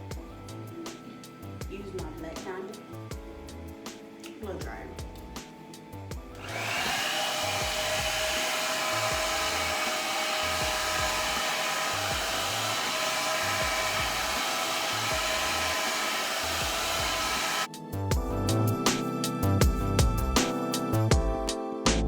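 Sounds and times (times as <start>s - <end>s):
blow dryer running: 6.4s - 17.7s.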